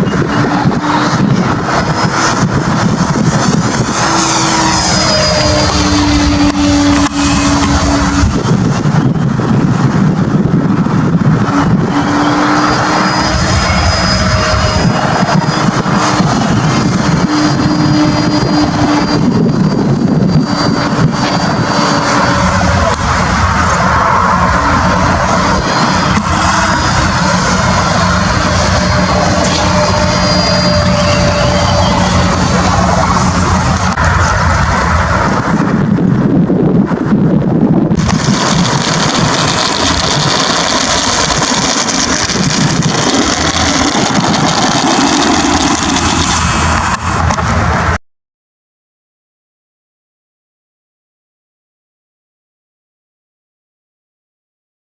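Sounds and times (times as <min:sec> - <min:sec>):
vehicle engine and road rumble: 0:00.0 - 0:48.0
vehicle engine running: 0:37.8 - 0:47.8.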